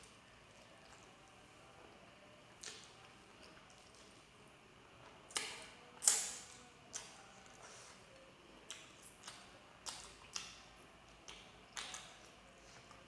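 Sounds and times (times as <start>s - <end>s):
person chewing food: 8.7s - 13.0s.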